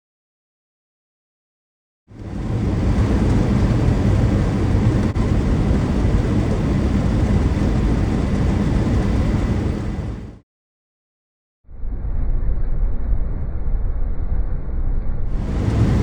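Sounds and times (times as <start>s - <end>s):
vehicle rumble with road noise: 2.1s - 10.4s, 15.3s - 16.0s.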